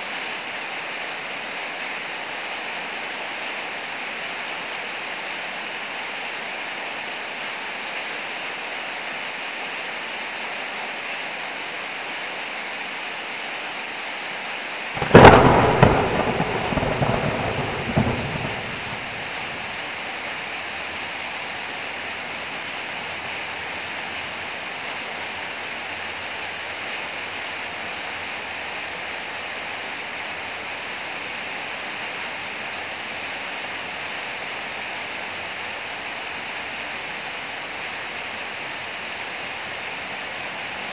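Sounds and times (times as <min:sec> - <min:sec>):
heavy rain falling: 0:00.0 - 0:40.9
thunderclap rumbling: 0:15.0 - 0:20.0.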